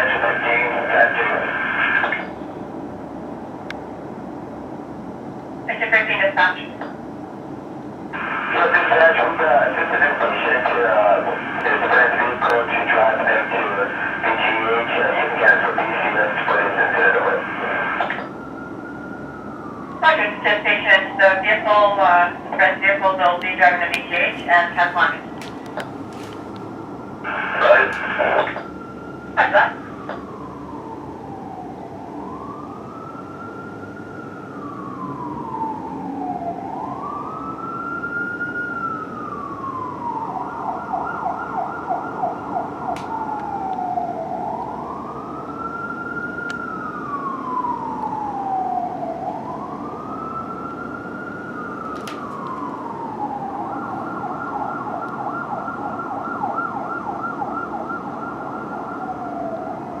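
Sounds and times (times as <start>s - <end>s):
fire engine siren wailing: 0.0s - 60.0s.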